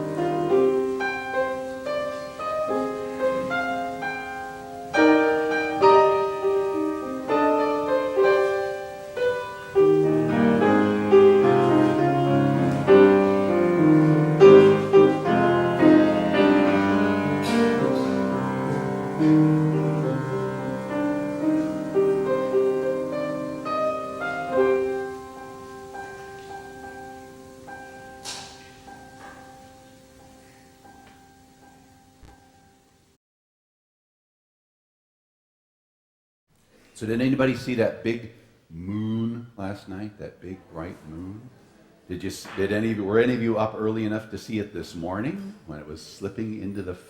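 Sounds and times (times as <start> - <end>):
piano playing slow chords: 0.0 - 33.2.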